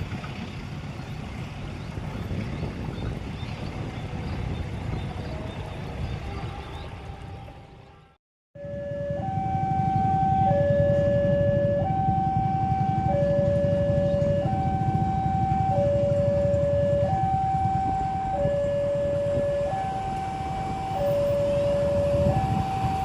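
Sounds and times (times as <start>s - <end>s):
two-tone electronic alarm: 8.6s - 23.0s.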